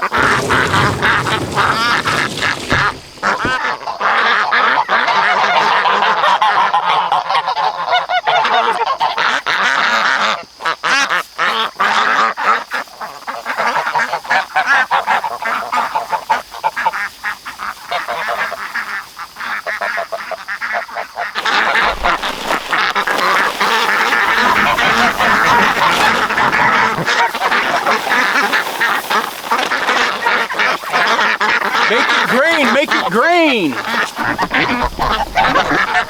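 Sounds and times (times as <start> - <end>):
ducks quacking: 0.0 - 3.6, 21.4 - 36.0
geese honking: 0.0 - 3.7, 21.4 - 36.0.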